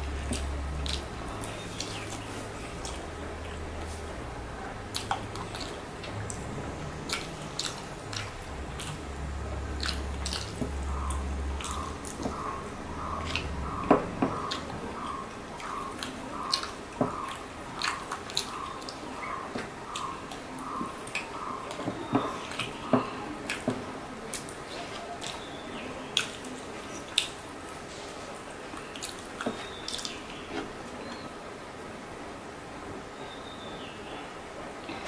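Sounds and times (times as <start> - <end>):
chewing and wet mouth sounds: 0.0 - 4.2, 4.9 - 28.1, 28.7 - 31.2
lip smacks: 4.9 - 9.1, 9.7 - 22.8
faint chirping: 5.4 - 23.4.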